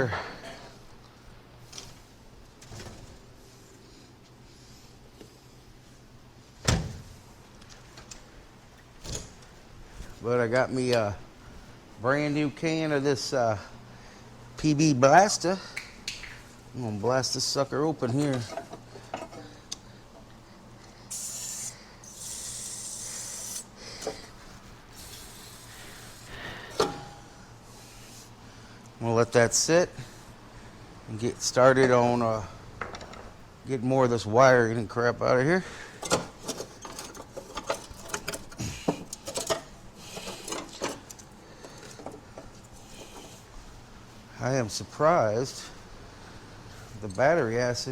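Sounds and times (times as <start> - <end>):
wires and connectors rattling: 36.0 - 43.3.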